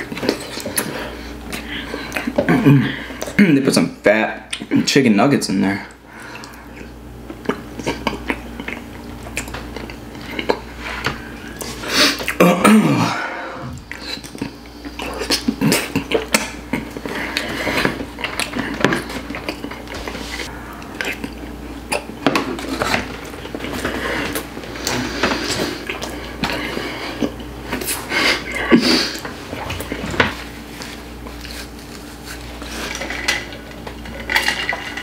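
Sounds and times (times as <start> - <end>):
mouth noises of chewing: 6.2 - 12.4, 13.7 - 30.2.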